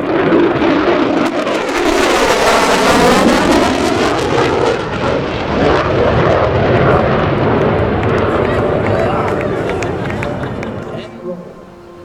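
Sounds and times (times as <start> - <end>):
jet fighter low pass: 0.0 - 12.0.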